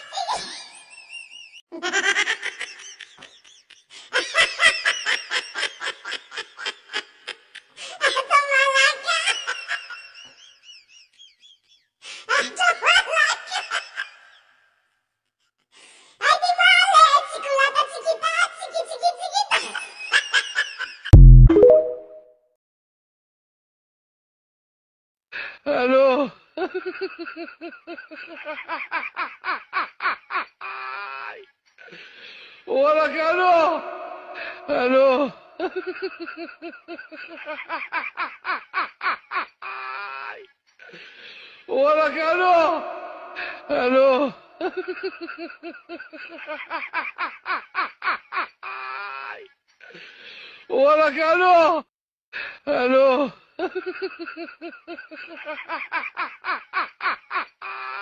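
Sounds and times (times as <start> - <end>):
person laughing: 0.0 - 8.2, 33.4 - 41.0, 42.4 - 48.5
drawn-out voiced sound: 32.8 - 35.6, 41.9 - 44.6.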